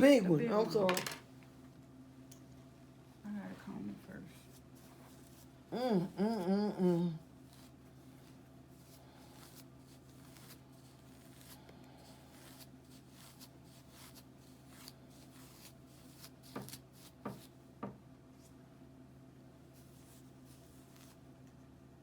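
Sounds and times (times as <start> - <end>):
comb rasping through dry hair: 4.3 - 17.6.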